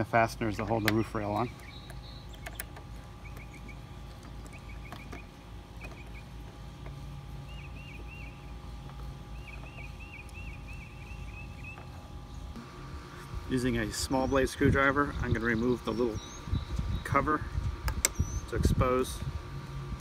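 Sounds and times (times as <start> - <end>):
low background rumble: 0.0 - 20.0
bird chirping: 0.4 - 12.6, 13.9 - 17.3, 18.0 - 18.6.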